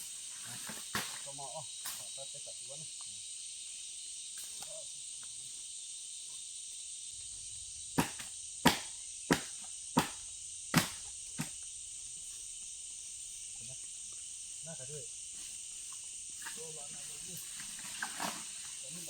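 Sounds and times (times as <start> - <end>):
insects droning: 0.0 - 19.0
sharp knocks: 8.0 - 11.6.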